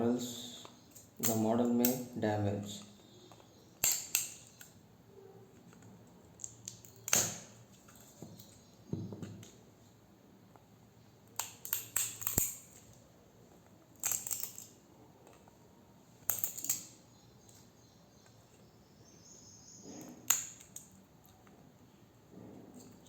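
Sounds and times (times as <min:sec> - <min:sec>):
plastic snapping and cracking: 0:03.3 - 0:04.8, 0:05.7 - 0:07.6, 0:11.3 - 0:12.9, 0:14.0 - 0:14.8.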